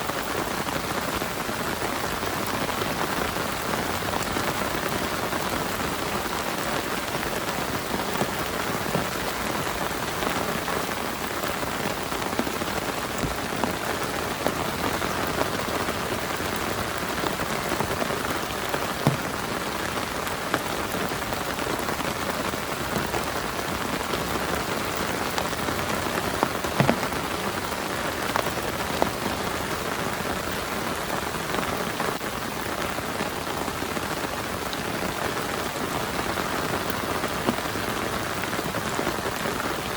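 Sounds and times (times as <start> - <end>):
heavy rain falling: 0.0 - 39.9
drops striking a surface: 19.0 - 19.6, 26.8 - 27.3.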